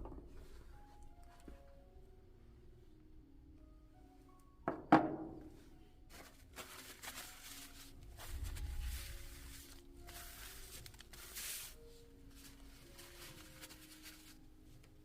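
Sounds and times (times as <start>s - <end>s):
soft background music: 0.0s - 15.0s
tool set down on bench: 4.7s - 5.5s
rubbing and handling noise: 5.4s - 15.0s.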